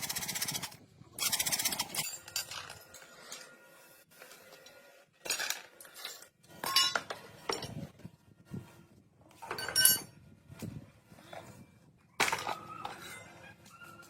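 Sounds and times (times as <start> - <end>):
metal tools clinking and clattering: 2.0 - 3.5, 5.2 - 7.9, 9.4 - 10.2.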